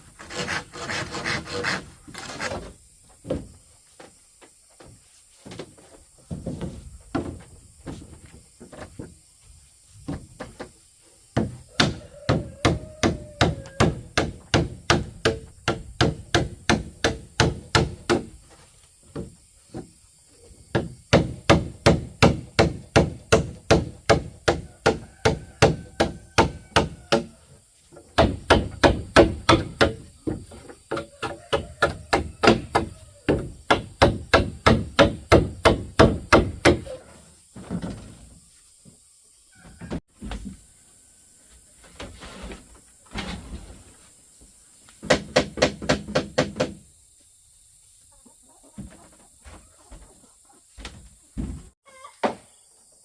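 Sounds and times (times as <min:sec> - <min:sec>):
hand tool striking bamboo: 0:28.2 - 0:30.0.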